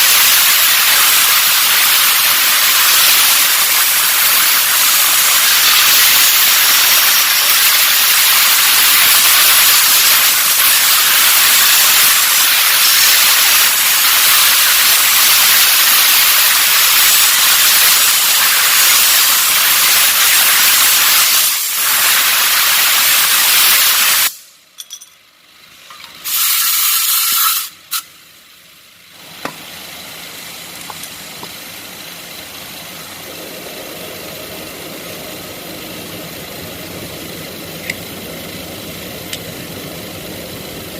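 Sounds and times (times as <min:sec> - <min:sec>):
pressurized spray hissing: 0:00.0 - 0:24.5, 0:26.3 - 0:28.0.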